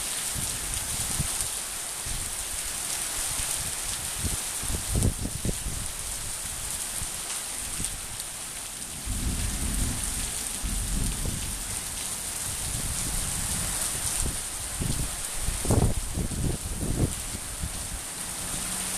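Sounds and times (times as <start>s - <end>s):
heavy rain falling: 0.0s - 18.9s
low rumble: 9.0s - 13.8s.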